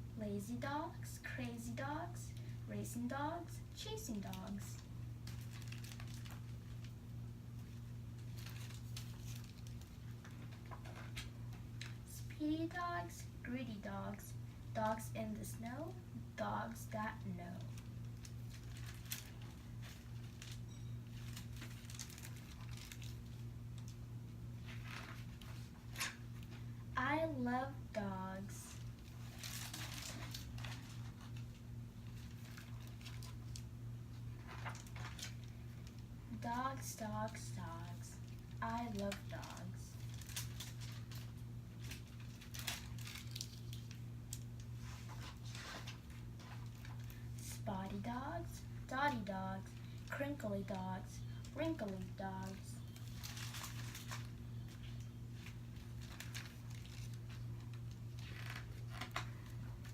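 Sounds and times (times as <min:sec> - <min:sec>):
low electrical hum: 0:00.0 - 0:59.9
paper page turning: 0:08.2 - 0:11.3, 0:34.4 - 0:35.4, 0:58.1 - 0:59.3
book pages rustling: 0:08.2 - 0:12.0, 0:34.4 - 0:35.5, 0:38.8 - 0:47.2.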